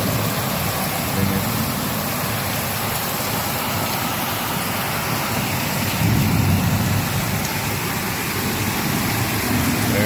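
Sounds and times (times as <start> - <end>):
heavy rain pouring: 0.0 - 10.0
low thunder rumble: 5.8 - 10.0.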